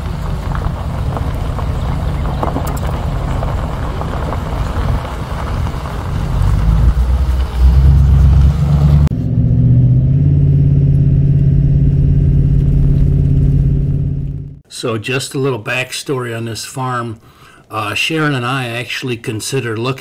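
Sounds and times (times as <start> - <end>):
excavator engine rumbling: 0.0 - 14.6.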